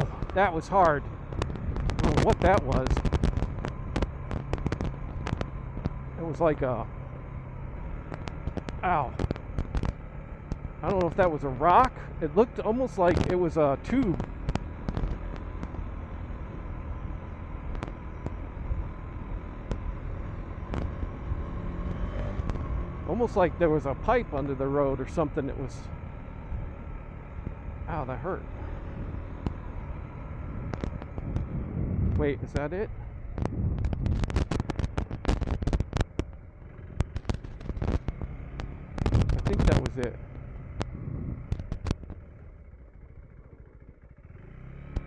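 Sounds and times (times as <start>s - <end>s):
wind noise: 0.0s - 6.6s, 28.7s - 42.3s
dirt bike engine rumbling: 0.0s - 45.0s
wind: 0.0s - 45.0s
sharp clicks: 1.3s - 6.2s, 7.9s - 11.2s, 19.5s - 23.0s, 28.9s - 42.3s
stones knocking against motorcycle: 2.9s - 6.0s, 8.0s - 11.1s, 33.4s - 36.4s, 37.0s - 42.2s.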